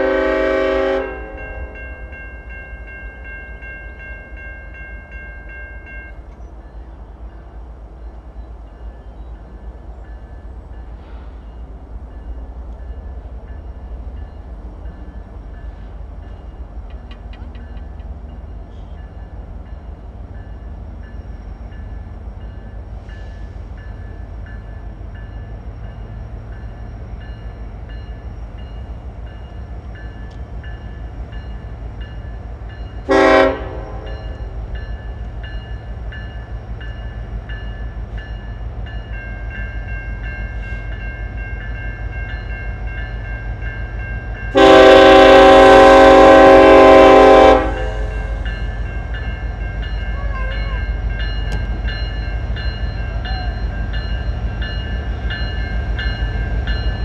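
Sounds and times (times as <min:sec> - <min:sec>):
train air horn blasts: 0:00.0 - 0:01.8, 0:33.0 - 0:34.6, 0:44.5 - 0:48.5
train locomotive rumbling: 0:00.0 - 0:57.0.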